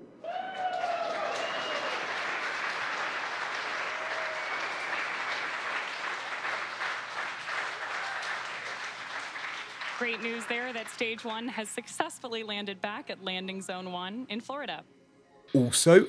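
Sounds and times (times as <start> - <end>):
crowd clapping: 0.0 - 11.5
crowd cheering and whooping: 0.1 - 2.4, 3.5 - 5.2, 7.8 - 8.6.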